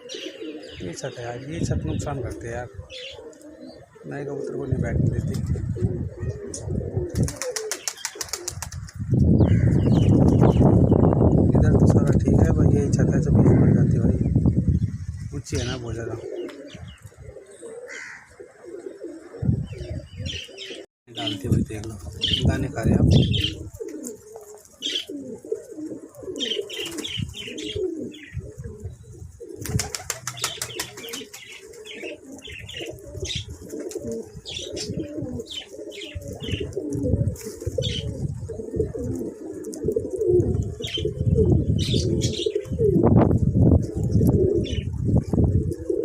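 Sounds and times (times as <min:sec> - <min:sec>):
pigeons cooing: 0:00.0 - 0:46.0
wings flapping: 0:07.1 - 0:09.1, 0:26.4 - 0:27.7, 0:29.5 - 0:34.3.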